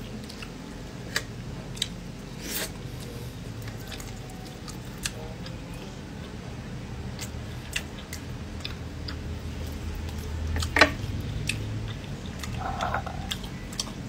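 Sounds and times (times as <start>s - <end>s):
low steady hum: 0.0s - 14.0s
wet chewing and lip-smacking: 3.0s - 5.6s, 7.2s - 14.0s.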